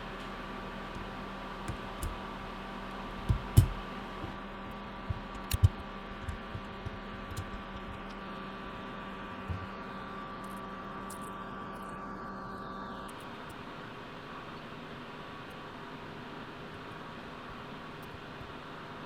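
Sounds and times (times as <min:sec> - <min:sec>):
steady electrical hum: 0:00.0 - 0:19.0
small clicks and taps of sockets: 0:05.1 - 0:08.2.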